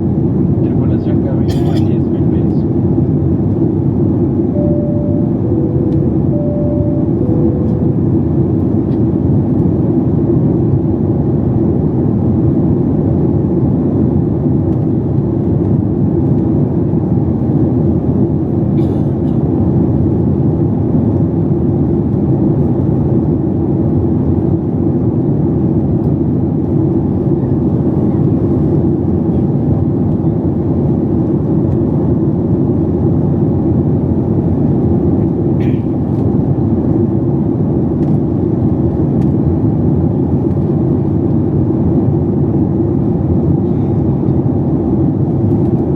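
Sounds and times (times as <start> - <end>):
airplane cabin rumble: 0.0 - 45.9
two-note cabin chime: 4.5 - 8.9.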